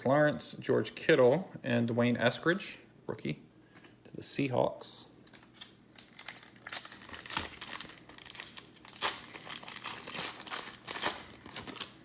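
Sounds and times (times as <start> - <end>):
foil wrapper tearing and crinkling: 5.3 - 12.0.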